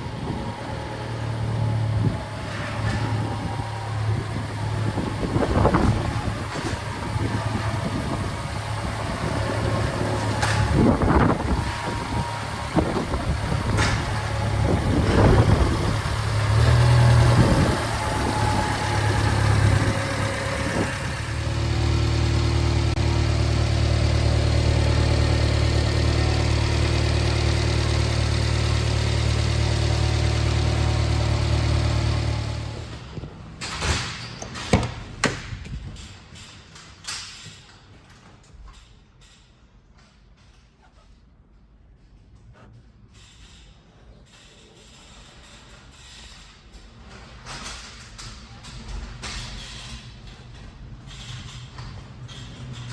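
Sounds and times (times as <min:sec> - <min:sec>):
small engine idling: 0:00.0 - 0:33.6
sharp clicks and knocks: 0:32.7 - 0:38.8
knocks: 0:33.1 - 0:36.0.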